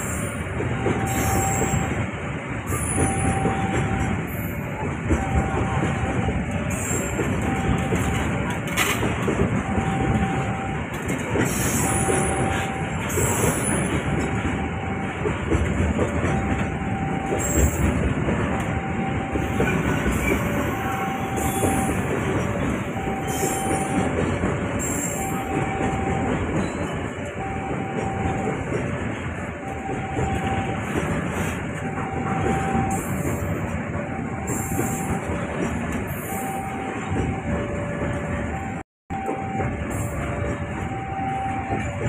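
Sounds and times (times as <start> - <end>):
train wheels rumbling on rails: 0.0 - 42.0
two-tone warning signal: 0.0 - 42.0.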